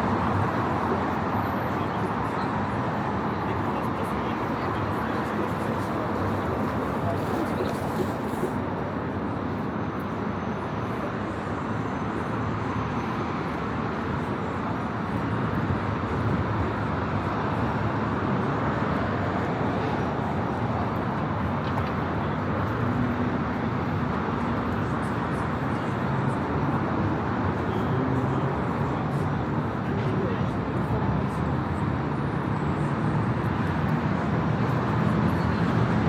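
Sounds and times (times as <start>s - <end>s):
city street traffic: 0.0s - 36.0s.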